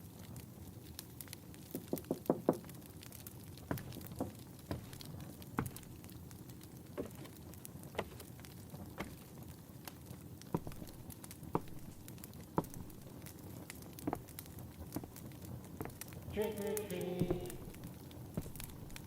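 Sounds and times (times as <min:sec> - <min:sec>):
fireplace crackling: 0:00.0 - 0:19.0
slow footsteps: 0:03.7 - 0:05.9, 0:07.0 - 0:09.2, 0:10.5 - 0:13.3, 0:14.0 - 0:19.0.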